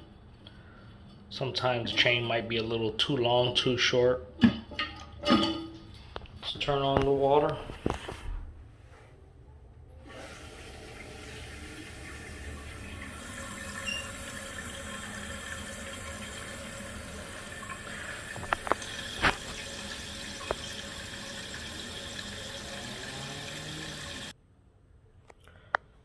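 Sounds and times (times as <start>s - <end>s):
toilet tank refilling hiss: 10.0s - 24.3s.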